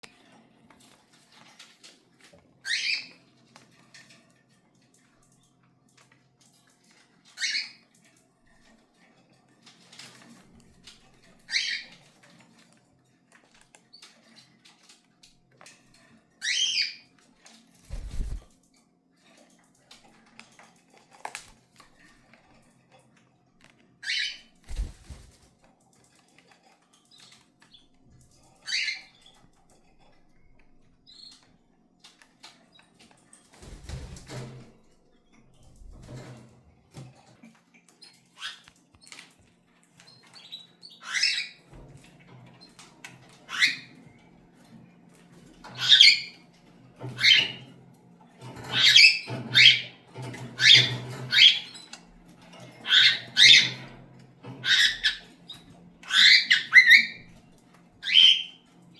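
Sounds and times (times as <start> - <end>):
cockatiels squawking: 2.7 - 3.1, 11.5 - 11.9, 24.0 - 25.4, 45.8 - 46.4, 48.7 - 50.0, 50.6 - 51.7, 52.8 - 53.9, 54.6 - 55.3, 56.1 - 57.3, 58.0 - 58.6.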